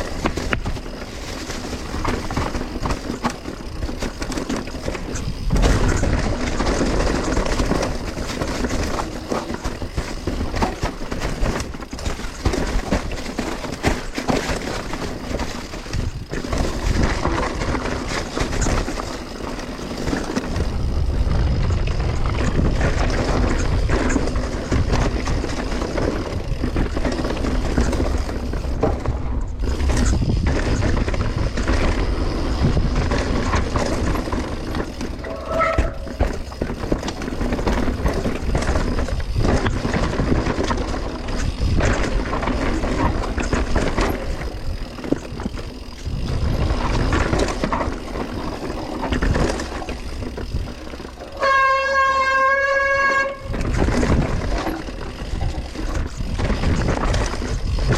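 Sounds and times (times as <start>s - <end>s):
bike rattling over bumps: 0.0s - 57.9s
tyre noise on dirt: 0.0s - 57.9s
wind rush on microphone: 0.0s - 57.9s
short squeal: 35.2s - 36.2s.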